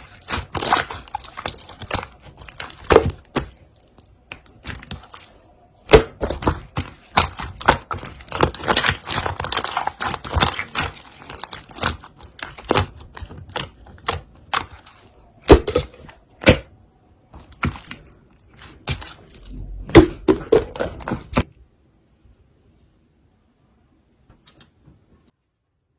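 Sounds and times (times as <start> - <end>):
slime clicking and popping: 5.9 - 14.8.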